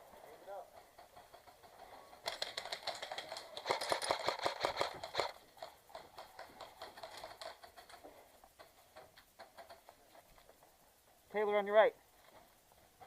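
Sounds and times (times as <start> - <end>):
airsoft guns firing: 2.2 - 7.4.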